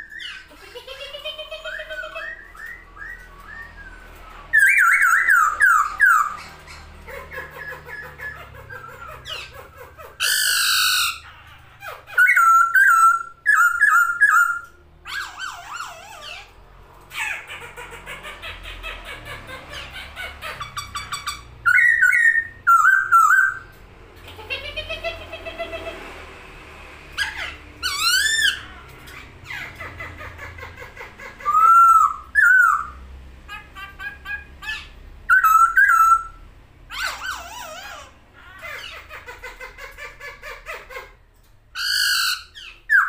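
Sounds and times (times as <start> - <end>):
bird chattering: 0.0 - 26.0, 27.2 - 43.0
bird whistled calls: 1.8 - 6.6, 12.1 - 16.0, 20.8 - 23.7, 34.7 - 36.4.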